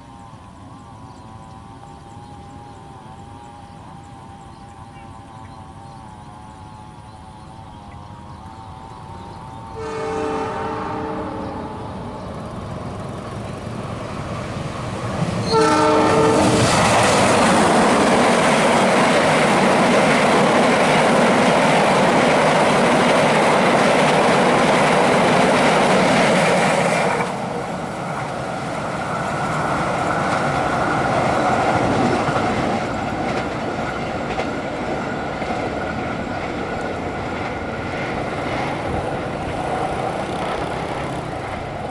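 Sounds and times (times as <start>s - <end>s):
train running: 0.0s - 41.9s
train horn blast: 9.7s - 13.2s, 15.4s - 17.2s
train wheels clattering: 9.8s - 41.9s.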